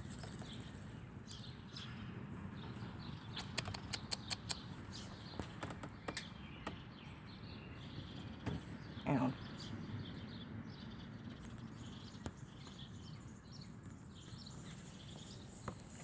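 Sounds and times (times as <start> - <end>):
small birds chirping: 0.0 - 16.0
sharp clicks: 3.4 - 4.6.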